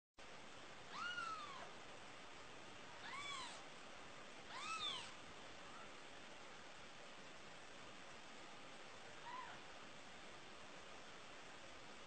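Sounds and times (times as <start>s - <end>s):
faint steady hiss: 0.2s - 12.0s
kitten mewing: 0.9s - 1.7s, 3.0s - 3.7s, 4.5s - 5.9s, 9.2s - 9.6s.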